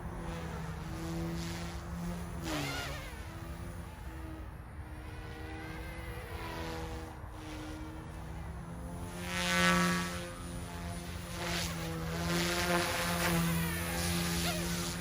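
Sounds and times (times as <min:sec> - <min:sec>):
rc helicopter buzzing whine: 0:00.0 - 0:15.0.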